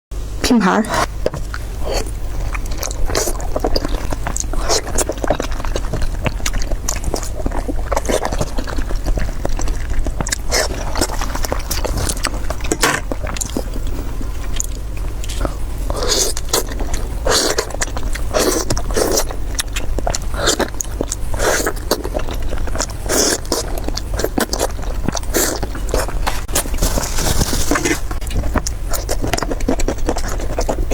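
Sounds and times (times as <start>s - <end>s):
crisp biting and chewing: 0.9s - 30.9s.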